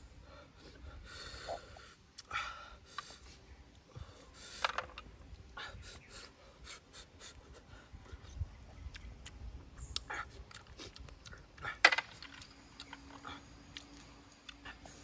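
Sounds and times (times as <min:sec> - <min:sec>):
man chewing wetly: 0:08.0 - 0:15.0.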